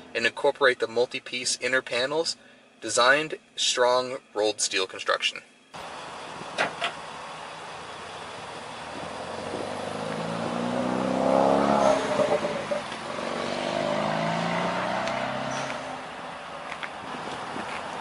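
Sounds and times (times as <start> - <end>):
vehicle engine passing by: 7.9 - 18.0.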